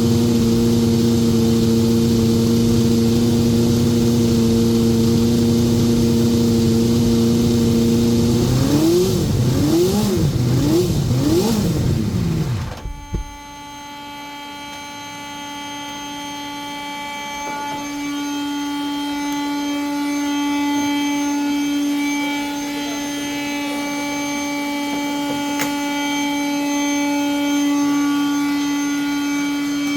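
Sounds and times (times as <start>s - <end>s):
racing car engine revving: 0.0s - 13.6s
high-pitched whine: 0.0s - 29.9s.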